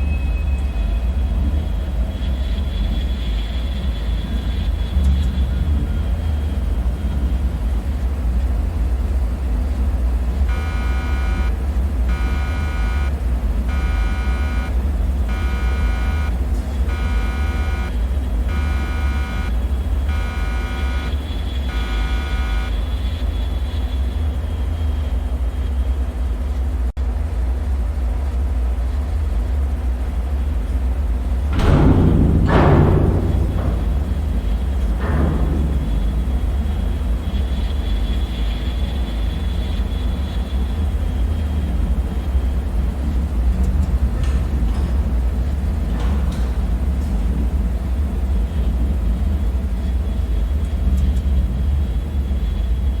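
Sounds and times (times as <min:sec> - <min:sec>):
pulsing alarm tone: 0:10.5 - 0:22.8, 0:31.6 - 0:39.6
deep rumbling drone: 0:30.6 - 0:53.0.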